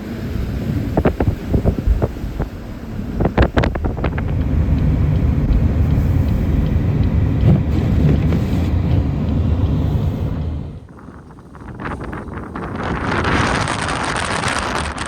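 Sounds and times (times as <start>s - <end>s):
blizzard wind: 0.0s - 15.0s
car driving rumble: 0.0s - 15.0s.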